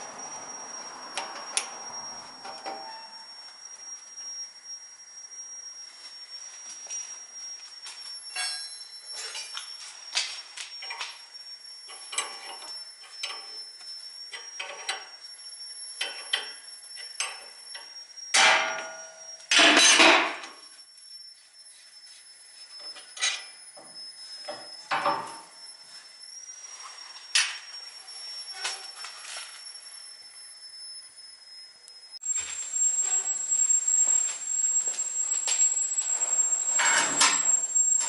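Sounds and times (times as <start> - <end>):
metal tools clinking and knocking: 8.3 - 9.6.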